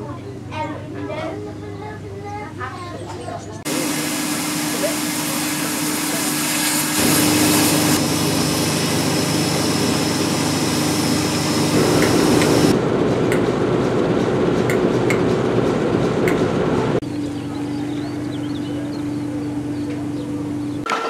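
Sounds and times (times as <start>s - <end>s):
diesel locomotive engine running: 0.0s - 21.0s
steam hissing from locomotive: 3.7s - 12.7s
train rumble from on board: 10.7s - 17.0s.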